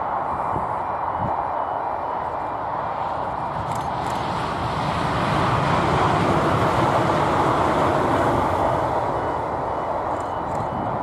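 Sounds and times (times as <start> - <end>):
electric train passing at speed: 0.0 - 11.0.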